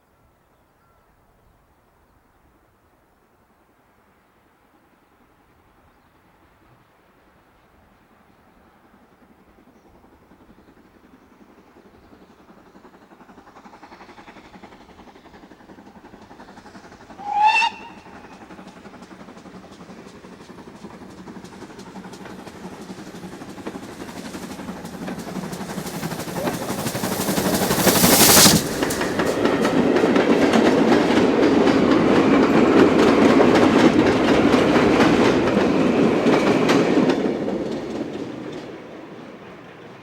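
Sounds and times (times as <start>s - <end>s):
steam locomotive passing: 3.4s - 40.0s.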